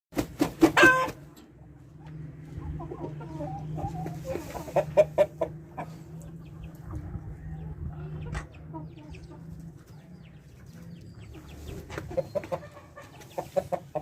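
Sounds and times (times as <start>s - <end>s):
chickens clucking: 0.2s - 14.0s
chicken loud squawking call: 0.7s - 1.2s.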